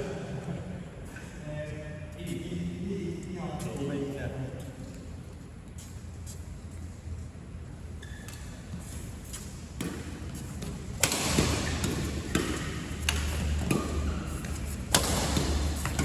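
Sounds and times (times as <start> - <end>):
background noise: 0.0 - 16.0
ball bouncing on court: 9.8 - 16.0.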